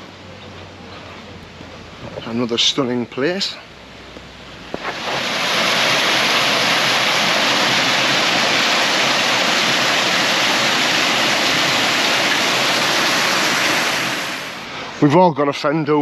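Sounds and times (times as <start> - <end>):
rush of splashing water: 4.4 - 15.2.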